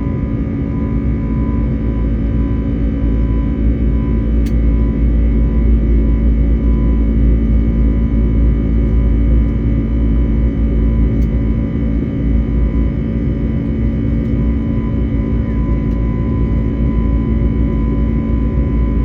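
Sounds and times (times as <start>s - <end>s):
jet engines in cabin: 0.0s - 19.0s.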